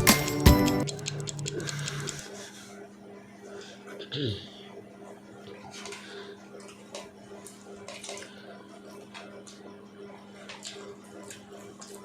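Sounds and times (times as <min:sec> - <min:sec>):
lip-smacking clicks: 0:00.8 - 0:02.3.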